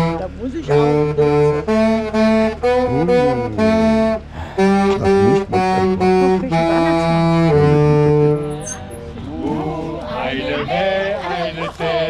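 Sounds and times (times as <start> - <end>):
slow saxophone-like wind melody: 0.0 - 8.7.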